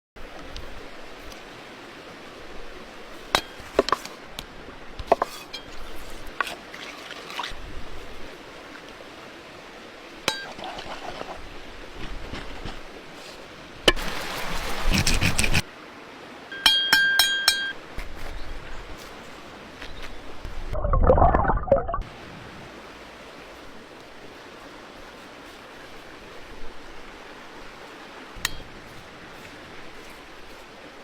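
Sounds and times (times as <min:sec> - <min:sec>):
steady background hiss: 0:22.1 - 0:31.0.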